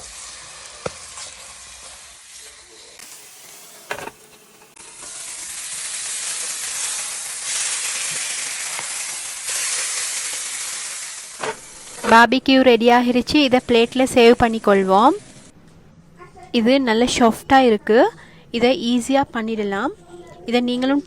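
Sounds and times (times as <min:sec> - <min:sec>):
chicken sizzling on a grill: 0:00.0 - 0:12.1.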